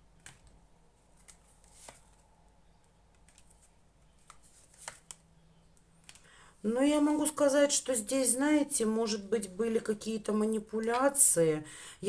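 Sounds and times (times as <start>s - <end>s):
cards clicking and snapping: 1.2s - 2.2s, 3.1s - 5.2s.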